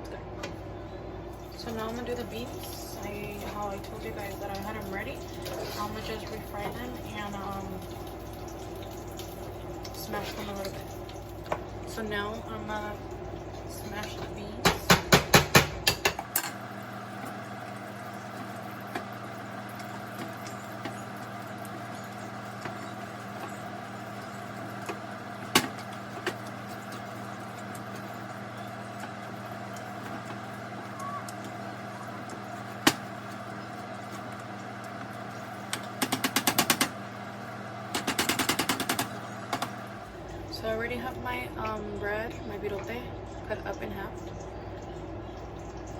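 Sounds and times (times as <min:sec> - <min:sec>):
steady background hum: 0:00.0 - 0:45.9
bean masher pounding pan: 0:14.0 - 0:16.5, 0:35.0 - 0:37.0, 0:37.9 - 0:39.8.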